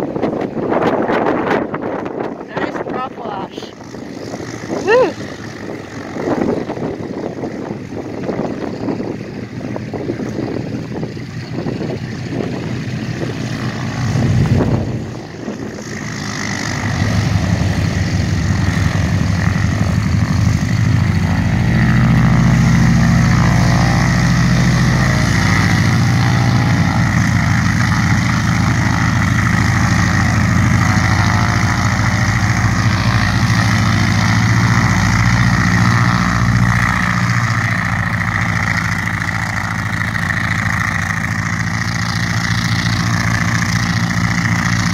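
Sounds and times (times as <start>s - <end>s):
propeller airplane engine idling: 0.0s - 44.9s
wind buffeting microphone: 0.0s - 44.9s.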